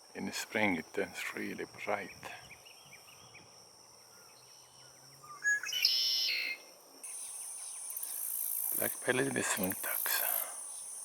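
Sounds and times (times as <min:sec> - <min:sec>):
blackbird buzzy trill song: 0:02.0 - 0:08.9
high-pitched insect buzz: 0:04.1 - 0:11.0.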